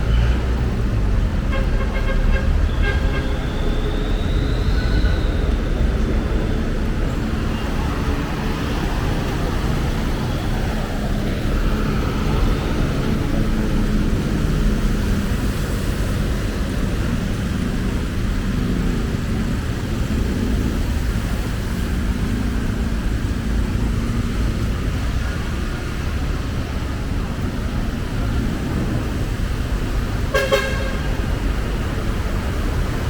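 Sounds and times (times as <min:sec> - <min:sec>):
road traffic rumble: 0:00.0 - 0:33.0
vehicle horn toot: 0:01.5 - 0:05.2, 0:30.3 - 0:31.3.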